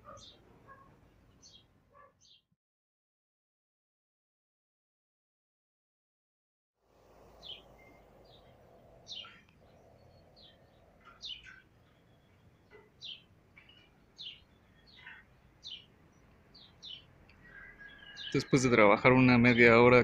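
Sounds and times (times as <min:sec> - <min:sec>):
bird chirping: 0:00.0 - 0:02.5, 0:07.0 - 0:20.0
faint outdoor background noise: 0:00.0 - 0:02.6, 0:06.8 - 0:20.0.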